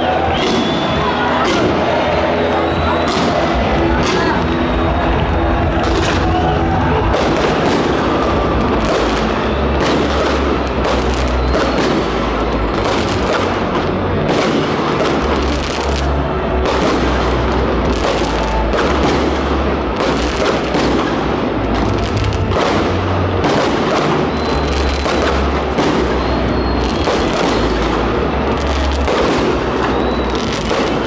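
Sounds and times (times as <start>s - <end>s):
fireworks bangs and crackles: 0.0s - 31.0s
music with heavy bass: 0.0s - 31.0s.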